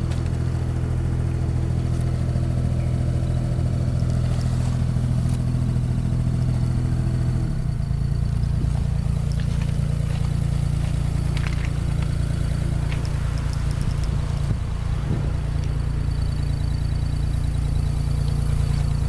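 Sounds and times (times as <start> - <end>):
engine idling: 0.0 - 19.0
light clicks and rattles: 8.6 - 14.5.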